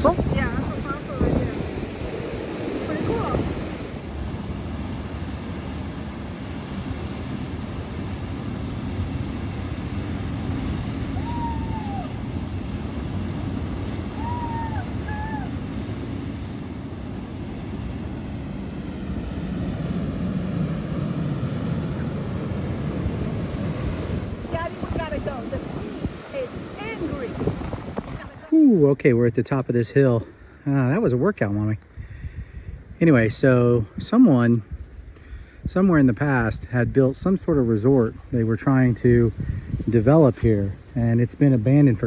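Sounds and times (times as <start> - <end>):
wind buffeting microphone: 0.0 - 28.7, 31.9 - 42.0
rough sea surf: 0.0 - 28.8
short high calls: 11.2 - 12.2, 14.1 - 15.6.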